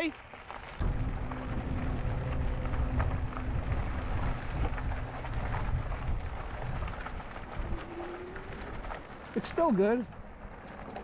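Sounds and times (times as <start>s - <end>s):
faint steady hum: 0.8s - 9.1s
wind buffeting microphone: 0.8s - 11.0s.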